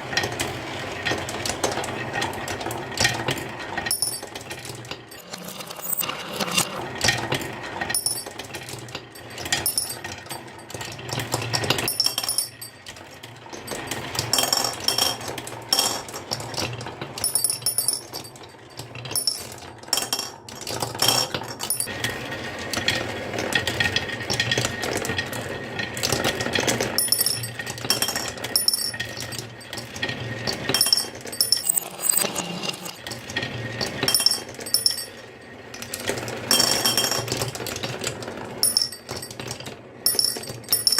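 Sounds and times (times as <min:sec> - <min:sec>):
marbles rolling down wooden track: 0:00.2 - 0:40.9
marbles clinking: 0:05.2 - 0:06.7, 0:30.8 - 0:33.0.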